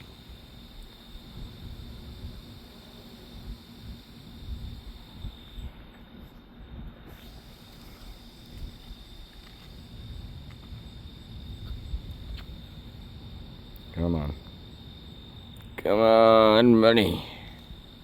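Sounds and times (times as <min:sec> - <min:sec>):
crickets trilling: 0:00.0 - 0:18.0
low outdoor rumble: 0:00.0 - 0:18.0.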